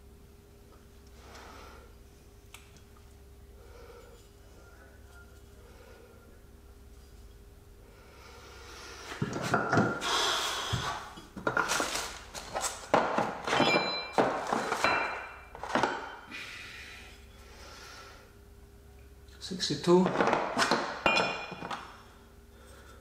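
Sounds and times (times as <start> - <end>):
metal tools clunking and clinking: 12.5 - 16.3, 20.0 - 21.8.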